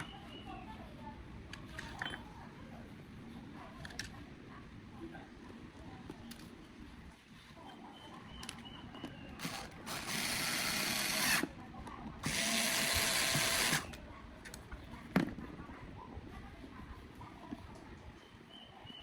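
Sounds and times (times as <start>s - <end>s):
power drill running: 9.4s - 11.5s, 12.2s - 14.0s.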